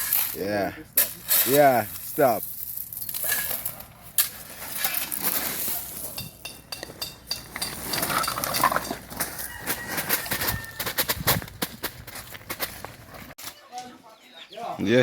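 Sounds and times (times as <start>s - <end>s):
shovels scraping in gravel: 0.0s - 13.4s
stone clinking on steel: 6.0s - 9.1s.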